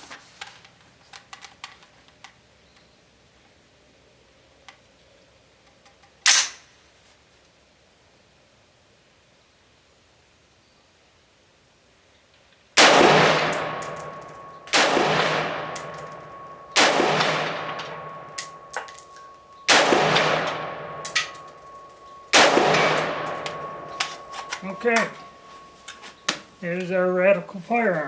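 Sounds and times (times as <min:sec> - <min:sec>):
rifle shots echoing: 0:12.8 - 0:25.7
brass casings clinking: 0:12.8 - 0:26.9.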